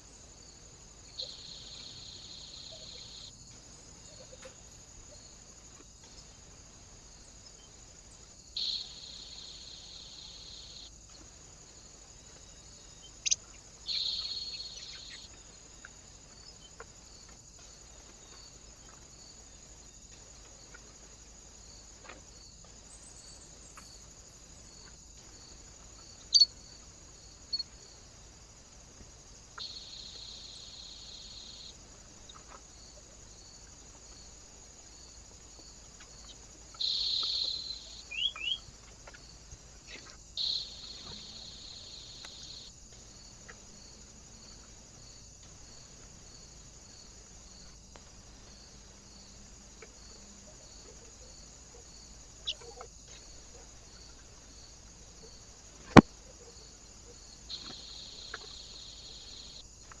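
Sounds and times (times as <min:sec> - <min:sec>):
small birds chirping: 0:08.6 - 0:11.3, 0:12.3 - 0:19.1, 0:29.6 - 0:32.6, 0:36.0 - 0:42.7.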